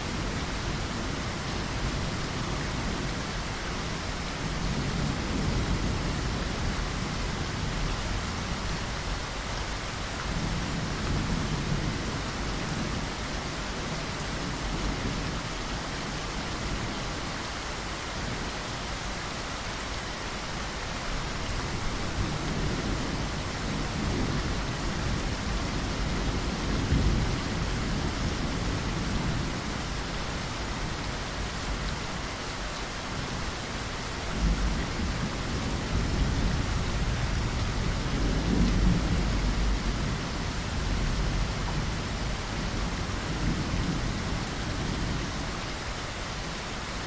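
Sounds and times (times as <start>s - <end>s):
steady rain: 0.0s - 47.0s
low thunder rolls: 34.3s - 45.5s.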